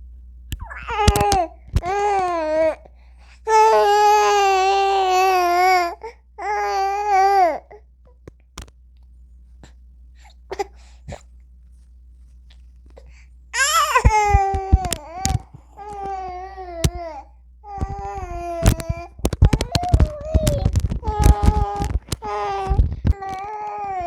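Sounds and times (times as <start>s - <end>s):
small clicks: 0.5s - 2.4s, 14.0s - 16.2s, 17.8s - 24.0s
newborn baby crying: 0.6s - 2.9s, 3.5s - 7.8s, 13.6s - 24.0s.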